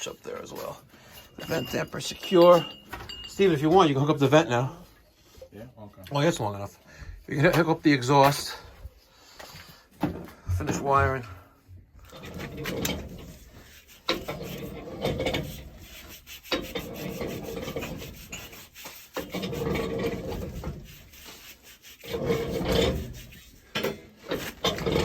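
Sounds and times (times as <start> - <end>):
rasping rubbing strokes by hand: 12.1 - 25.0.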